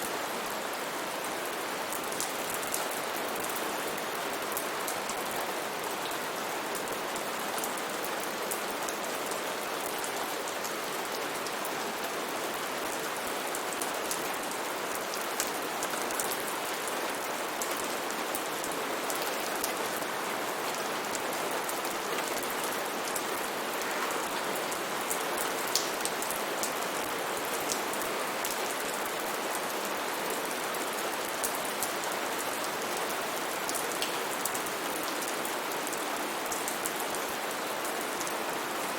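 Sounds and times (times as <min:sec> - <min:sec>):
steady rain falling: 0:00.0 - 0:38.9
raindrops ticking on a surface: 0:21.1 - 0:29.2, 0:33.7 - 0:35.3.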